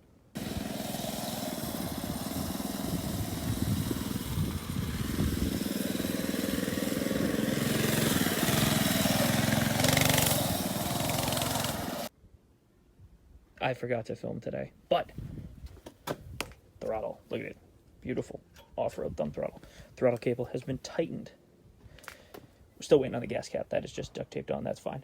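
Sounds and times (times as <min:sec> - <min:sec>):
mini bike engine running: 0:00.4 - 0:12.1.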